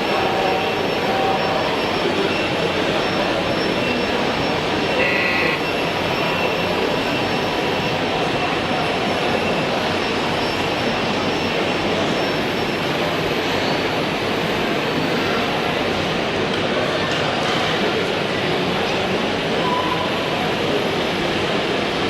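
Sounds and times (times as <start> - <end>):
brief high tone: 0.0 - 7.5, 19.6 - 20.2.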